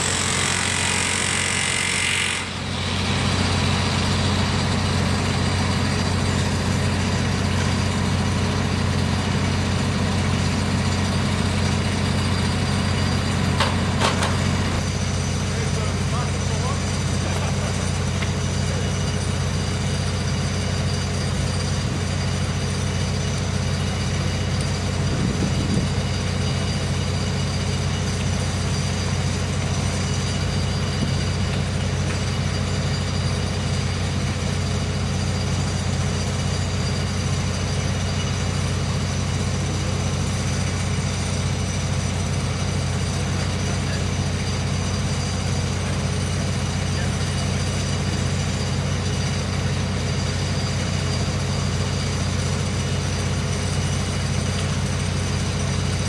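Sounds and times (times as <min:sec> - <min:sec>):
machinery drone: 0:00.0 - 0:22.6.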